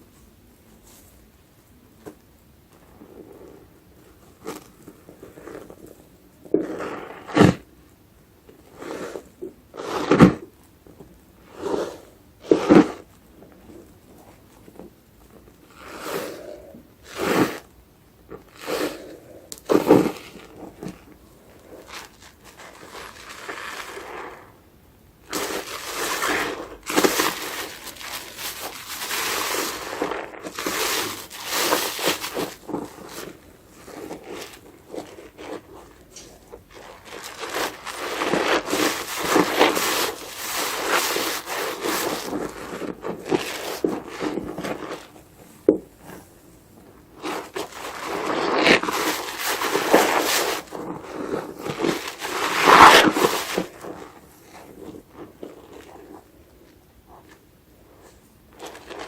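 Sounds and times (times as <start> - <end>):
wet sponge squishing: 2.8 - 7.7, 8.5 - 10.7, 11.4 - 59.0
foam crackling: 18.4 - 56.4.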